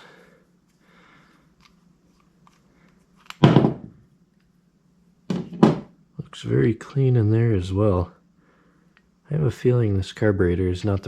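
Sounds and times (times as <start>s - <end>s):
loud thunk: 3.4s - 3.9s.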